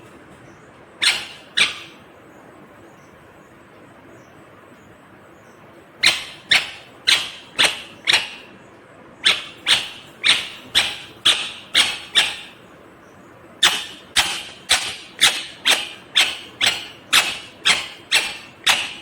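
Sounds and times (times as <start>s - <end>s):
parakeet sharp calls: 1.0s - 2.4s, 6.0s - 19.0s.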